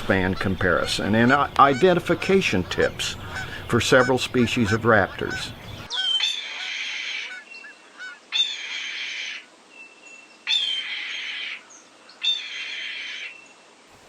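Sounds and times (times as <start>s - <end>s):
bird screaming harshly: 5.3s - 9.5s, 10.5s - 11.6s, 12.2s - 13.3s.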